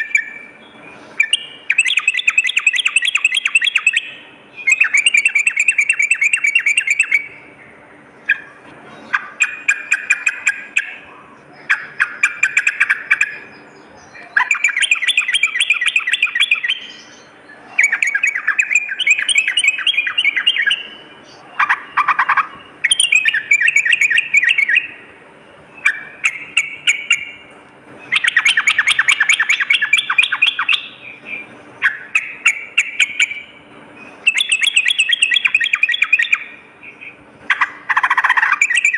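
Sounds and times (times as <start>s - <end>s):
bird singing chattering notes: 0.0s - 38.9s.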